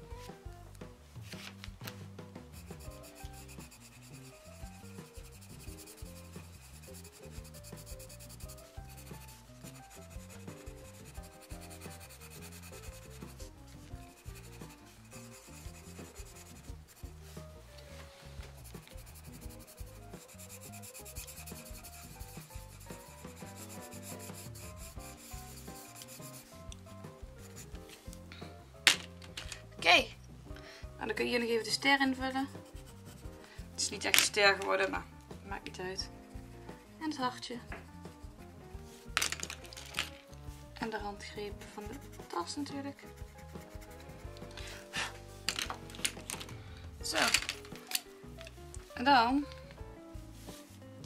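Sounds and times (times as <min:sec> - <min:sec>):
soft background music: 0:00.0 - 0:51.0
pencil scratching on paper: 0:02.5 - 0:27.9, 0:31.1 - 0:34.1, 0:37.1 - 0:39.0, 0:40.8 - 0:44.8.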